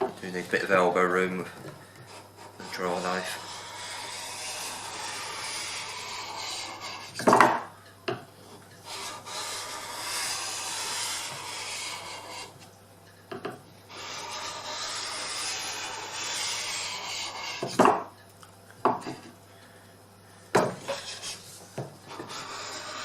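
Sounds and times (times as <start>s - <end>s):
blade scraping on sharpening stone: 2.6s - 7.2s, 8.9s - 12.5s, 13.9s - 17.8s, 22.1s - 23.0s.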